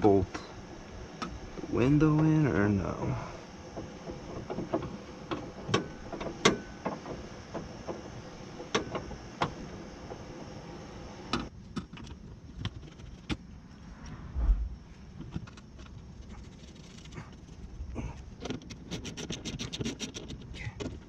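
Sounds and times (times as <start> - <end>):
sharp clicks and knocks: 3.7 - 10.2.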